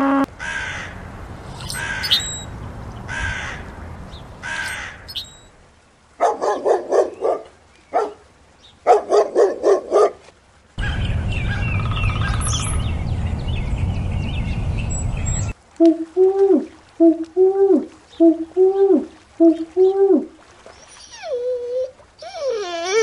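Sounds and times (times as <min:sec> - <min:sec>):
wind rumble: 0:00.3 - 0:05.8, 0:10.8 - 0:15.6
small birds chirping: 0:01.5 - 0:03.1, 0:04.0 - 0:05.5, 0:10.8 - 0:15.6
dog barking: 0:06.2 - 0:08.2, 0:08.9 - 0:10.2.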